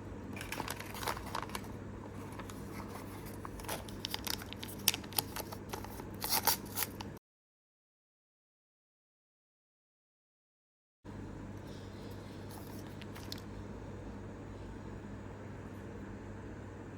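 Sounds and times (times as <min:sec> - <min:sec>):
plastic packaging crinkling and tearing: 0:00.4 - 0:07.2.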